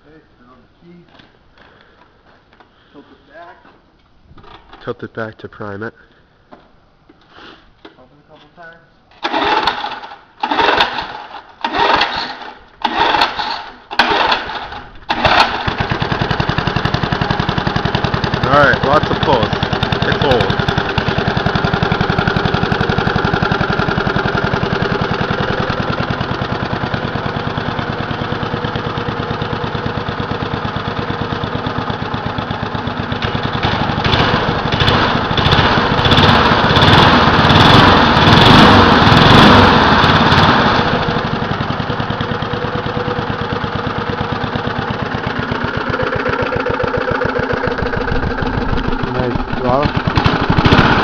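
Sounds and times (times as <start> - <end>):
lawn mower engine running: 9.1 - 51.0.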